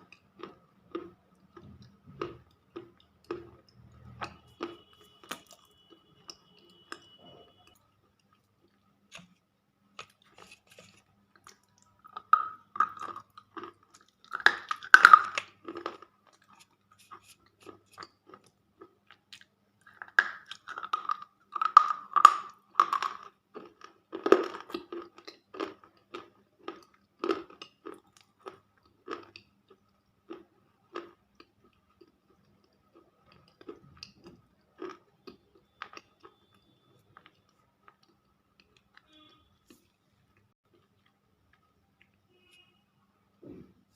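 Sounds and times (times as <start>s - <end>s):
crunching slate pencils: 9.1s - 18.5s.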